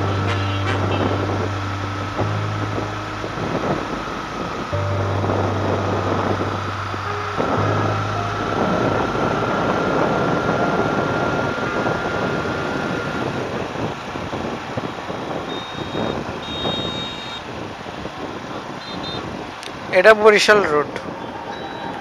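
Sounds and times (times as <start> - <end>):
thin steady whine: 0.0 - 17.5
motorcycle wind and road noise: 0.0 - 22.0
short high beeps: 15.5 - 17.4.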